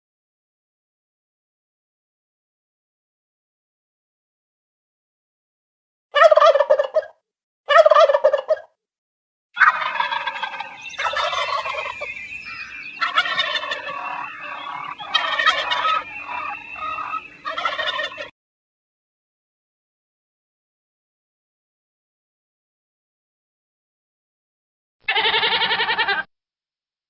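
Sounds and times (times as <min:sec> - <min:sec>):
turkeys gobbling: 0:06.2 - 0:07.1, 0:07.7 - 0:08.7, 0:09.6 - 0:18.3.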